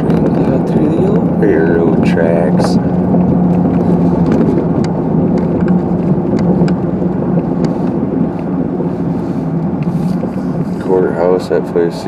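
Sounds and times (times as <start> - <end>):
low engine drone: 0.0 - 12.0
tyre and road rumble: 0.0 - 12.0
sharp clicks and knocks: 1.9 - 8.5.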